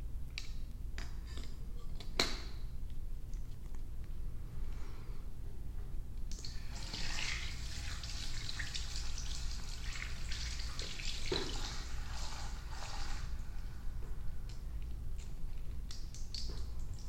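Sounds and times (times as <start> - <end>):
water running: 6.4 - 13.8.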